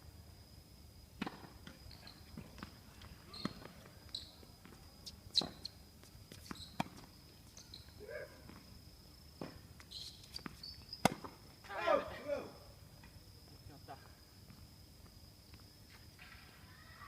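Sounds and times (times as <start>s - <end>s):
tennis ball hits and bounces: 1.2s - 1.8s, 10.4s - 11.4s.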